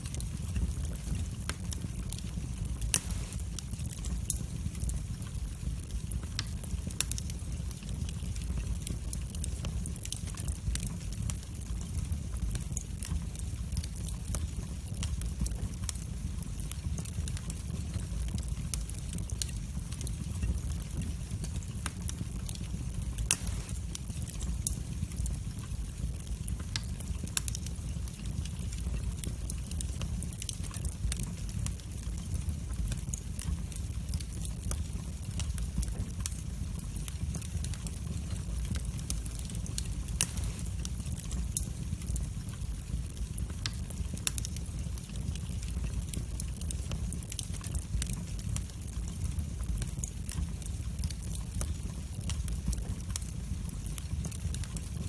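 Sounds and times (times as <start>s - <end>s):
loud fire pops: 0.0s - 55.0s
wood fire crackling: 0.0s - 55.0s.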